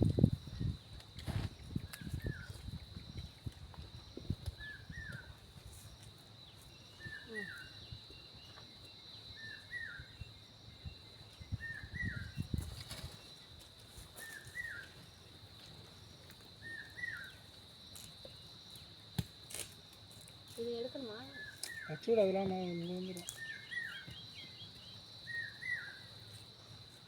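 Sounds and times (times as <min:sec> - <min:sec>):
rustles: 0:12.3 - 0:24.8, 0:25.8 - 0:27.0.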